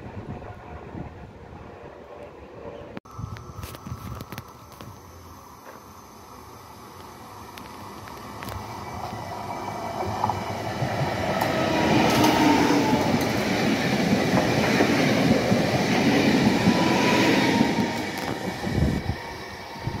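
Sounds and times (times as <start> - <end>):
faint steady whine: 3.1 - 9.8
train wheels rumbling on rails: 7.5 - 20.0.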